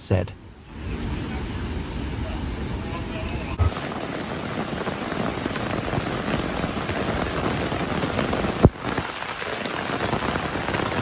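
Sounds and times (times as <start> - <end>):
heavy rain pattering: 2.2 - 11.0.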